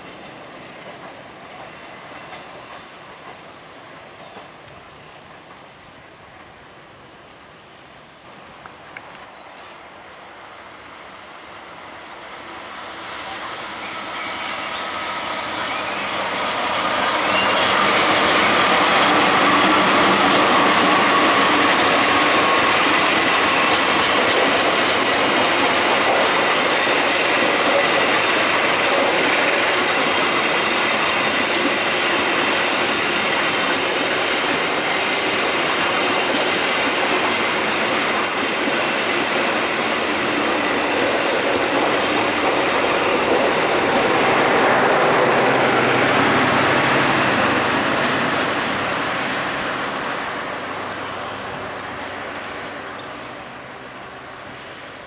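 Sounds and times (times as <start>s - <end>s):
passenger train passing: 0.0s - 55.0s
wheels rumbling on track: 15.4s - 55.0s.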